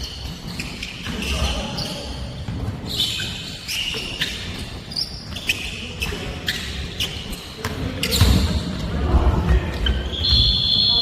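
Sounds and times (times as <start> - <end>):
basketball bouncing on court: 7.6 - 8.8.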